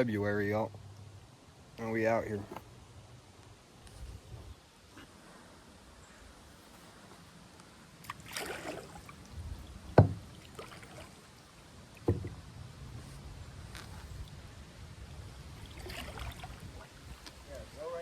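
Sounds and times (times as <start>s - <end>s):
paddle splashing in water: 8.0s - 9.4s, 10.0s - 12.5s, 15.5s - 17.5s
knocks against kayak: 10.0s - 10.2s, 12.0s - 12.4s.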